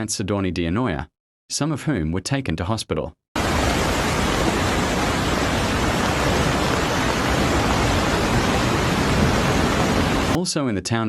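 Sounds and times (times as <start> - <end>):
storm water rushing: 3.4 - 10.4.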